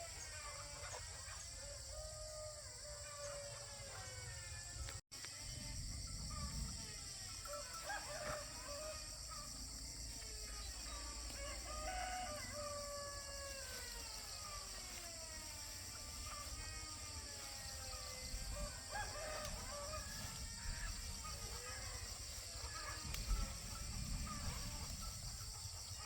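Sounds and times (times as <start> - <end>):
steady high-pitched hiss: 0.0 - 26.0
rooster crowing: 6.3 - 25.6.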